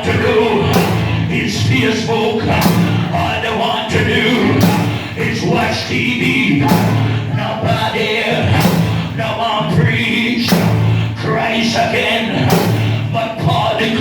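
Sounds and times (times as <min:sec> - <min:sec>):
gospel band playing: 0:00.0 - 0:14.0
voices singing: 0:00.0 - 0:14.0
cymbal crashes: 0:00.4 - 0:03.3, 0:06.7 - 0:07.4.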